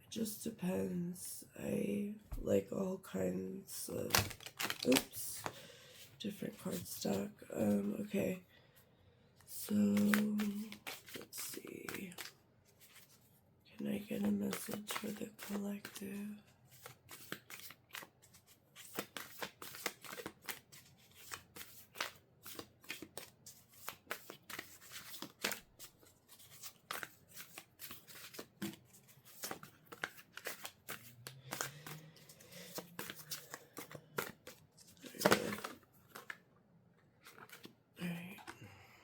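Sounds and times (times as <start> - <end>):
cards being shuffled: 4.1 - 5.6, 9.7 - 13.2, 14.2 - 16.0, 16.7 - 36.4, 37.2 - 37.7.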